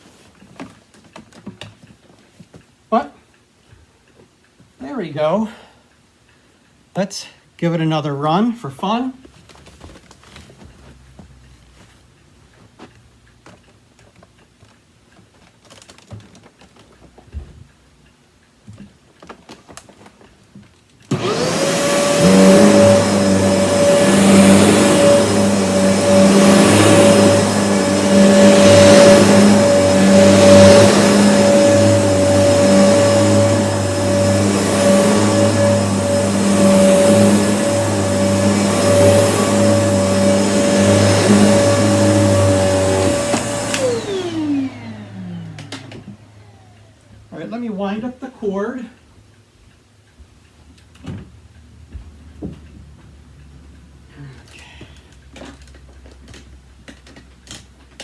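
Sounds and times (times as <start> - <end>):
vacuum cleaner motor whining: 21.1 - 47.3.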